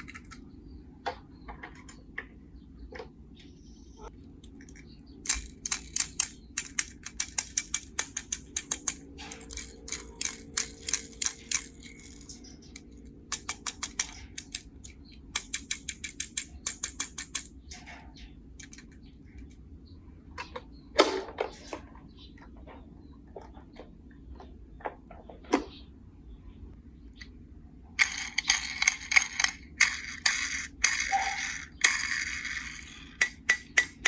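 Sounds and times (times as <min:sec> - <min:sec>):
toy parts clicking: 0:00.0 - 0:00.4, 0:04.4 - 0:17.6, 0:18.5 - 0:19.6, 0:28.0 - 0:34.0.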